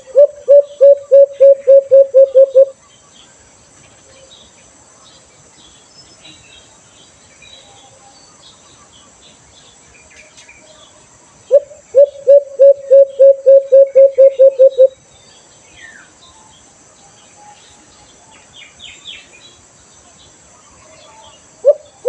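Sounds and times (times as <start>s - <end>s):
dove hooting: 0.0s - 2.8s, 11.5s - 15.0s, 21.1s - 22.0s
small birds chirping: 0.0s - 22.0s.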